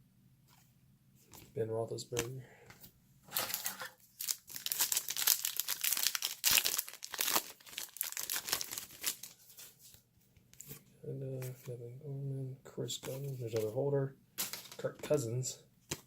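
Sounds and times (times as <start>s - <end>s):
wrapper tearing and crinkling: 3.3s - 9.8s.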